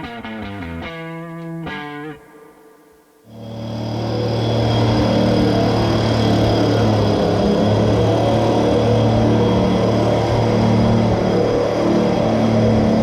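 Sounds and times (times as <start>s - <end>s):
faint high whine: 2.2s - 13.0s
farm machine engine humming: 3.3s - 13.0s.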